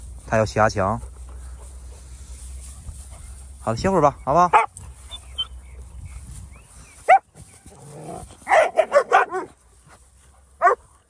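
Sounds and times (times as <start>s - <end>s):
dog barking: 4.5s - 4.8s, 8.5s - 9.6s, 10.6s - 10.8s.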